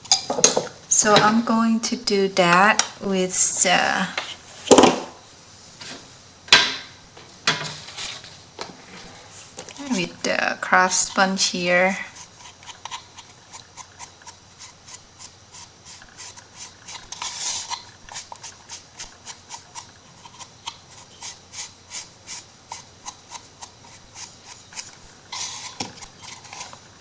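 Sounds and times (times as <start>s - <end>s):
sponge rubbing scratchy rasp: 8.8s - 27.0s.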